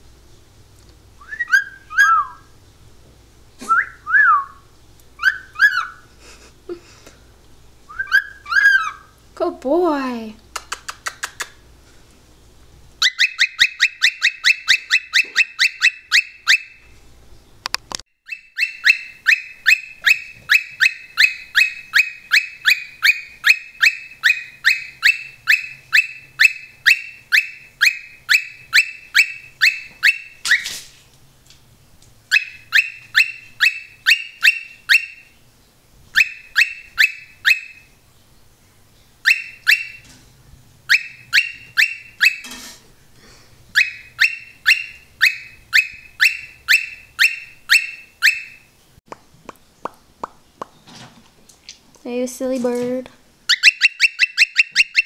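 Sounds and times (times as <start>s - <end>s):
cockatiel chirping: 1.2s - 2.5s, 5.2s - 6.0s, 7.9s - 9.2s, 13.0s - 16.9s, 18.3s - 30.7s, 32.3s - 35.4s, 36.1s - 37.9s, 39.2s - 40.1s, 40.9s - 42.6s, 43.7s - 48.7s, 53.5s - 55.0s.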